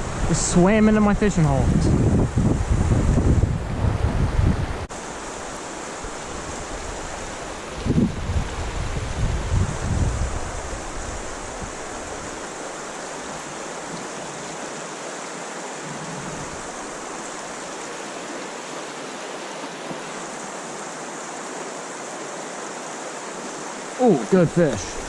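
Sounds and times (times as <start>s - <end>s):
wind buffeting microphone: 0.0s - 4.9s, 6.1s - 14.1s
creek water running over riffle: 4.1s - 25.0s.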